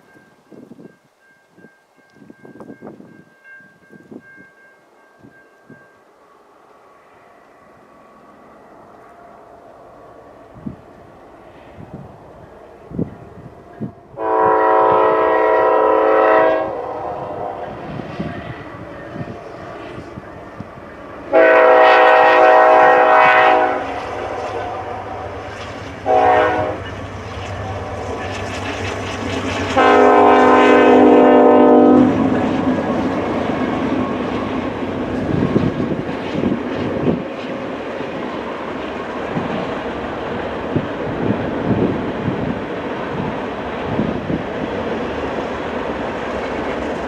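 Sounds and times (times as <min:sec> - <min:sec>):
passing train rumble: 0:00.0 - 0:47.0
locomotive horn: 0:13.8 - 0:18.5, 0:21.3 - 0:27.0, 0:29.6 - 0:33.8.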